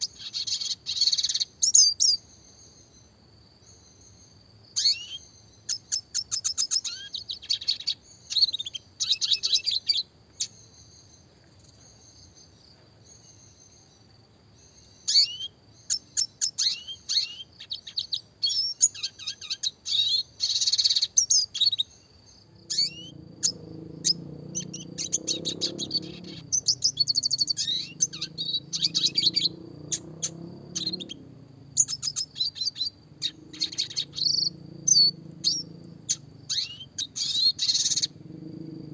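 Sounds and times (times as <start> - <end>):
bird twittering trills: 0.0 - 38.9
low drone: 22.4 - 38.9.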